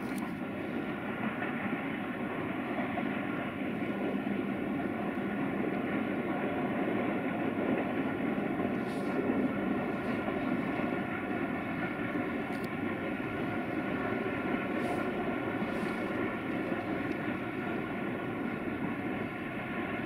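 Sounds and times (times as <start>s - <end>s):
distant freight train rumble: 0.0s - 20.0s
faint steady hum: 0.0s - 20.0s.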